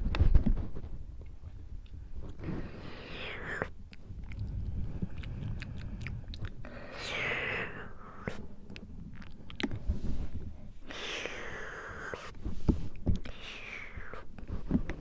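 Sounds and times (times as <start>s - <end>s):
breath rumble on microphone: 0.0s - 15.0s
breathy whispered exhale: 2.4s - 8.6s, 9.9s - 14.3s
tongue and lip clicks: 3.0s - 9.9s.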